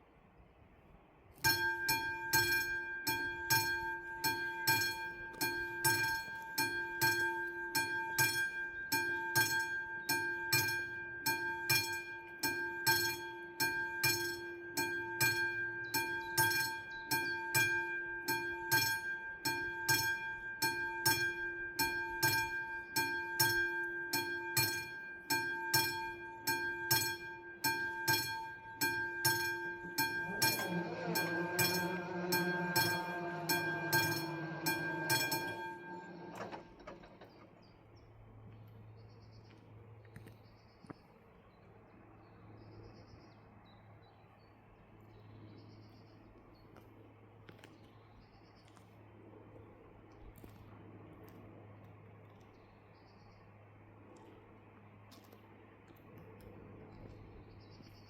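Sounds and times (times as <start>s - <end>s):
level crossing bells ringing: 1.4s - 37.4s
approaching train: 1.5s - 39.2s.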